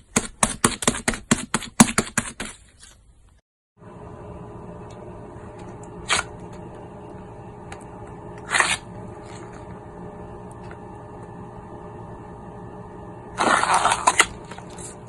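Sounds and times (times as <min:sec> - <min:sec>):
steady low hum: 0:03.8 - 0:15.0.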